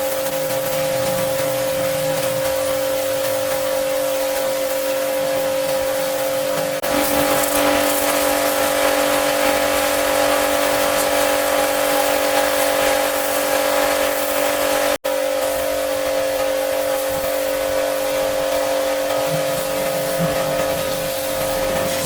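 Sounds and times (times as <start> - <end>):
pressure washer motor whine: 0.0 - 22.0
water spray hissing: 19.1 - 22.0.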